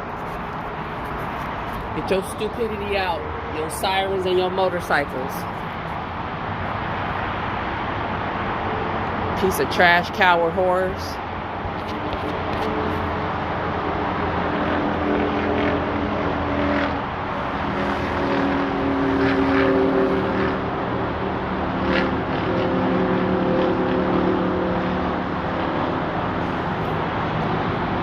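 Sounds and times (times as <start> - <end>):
vehicle engine droning: 10.9 - 28.0.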